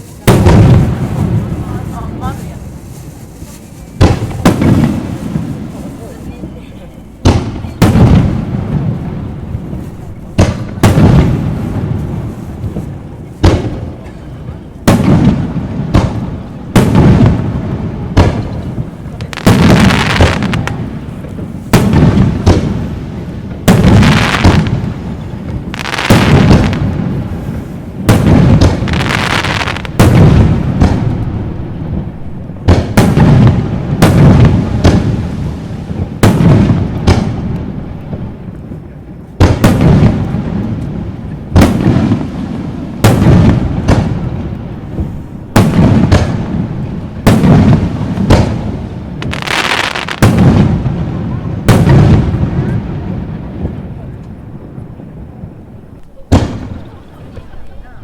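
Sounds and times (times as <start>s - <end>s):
fireworks bursting: 0.0s - 58.0s
fireworks crackling: 0.0s - 58.0s.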